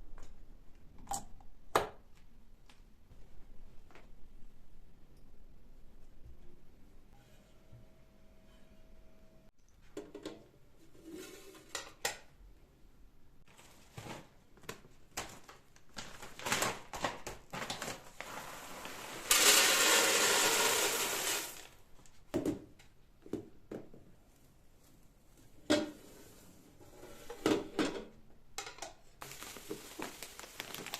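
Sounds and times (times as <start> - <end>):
objects knocking and clattering: 9.8 - 10.5.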